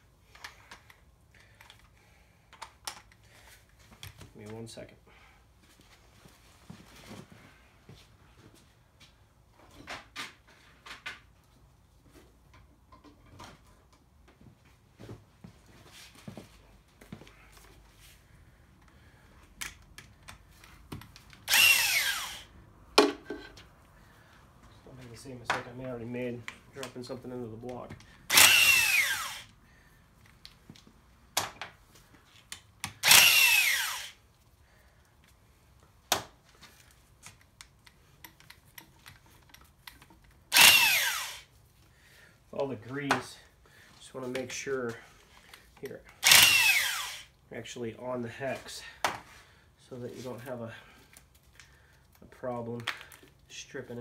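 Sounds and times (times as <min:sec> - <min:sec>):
power driver whine: 0:21.5 - 0:22.5, 0:28.3 - 0:29.5, 0:32.9 - 0:34.2, 0:40.5 - 0:41.5, 0:46.2 - 0:47.3.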